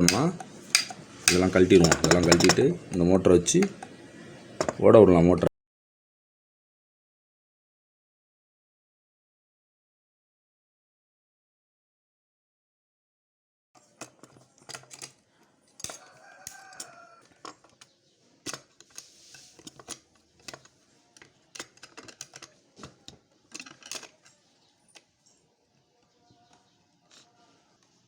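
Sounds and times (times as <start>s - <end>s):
metallic clicks and taps: 0.0s - 2.6s.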